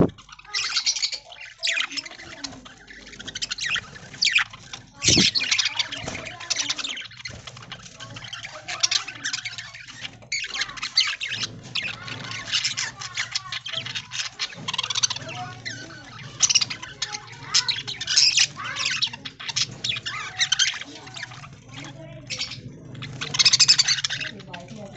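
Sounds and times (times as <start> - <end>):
budgies chattering and chirping: 0.0 - 24.9.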